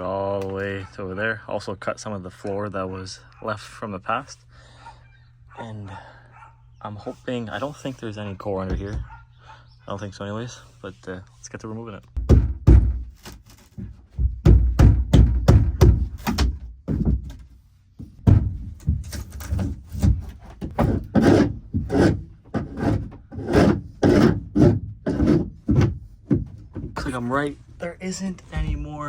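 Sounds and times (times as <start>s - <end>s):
knocking and scraping floor: 12.2s - 27.2s, 28.5s - 29.0s.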